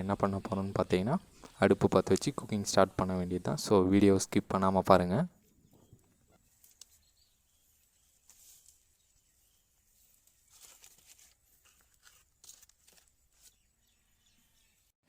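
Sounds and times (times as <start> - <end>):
faint rustling and clicking: 5.7 - 7.0.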